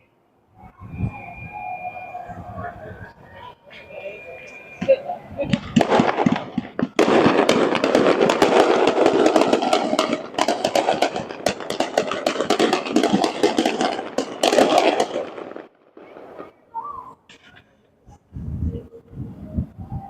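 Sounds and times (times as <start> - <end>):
continuous rumble: 0.0 - 20.0
fireworks crackling and popping: 4.0 - 17.6.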